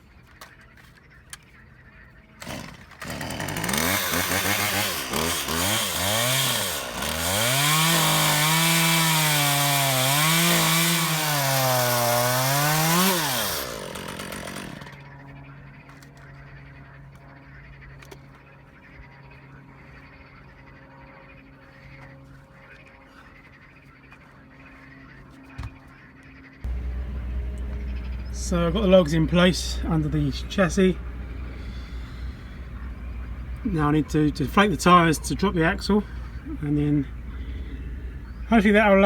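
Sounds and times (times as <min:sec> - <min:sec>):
chainsaw cutting log: 0:02.4 - 0:15.0, 0:26.7 - 0:39.0
steady hum: 0:26.7 - 0:39.0.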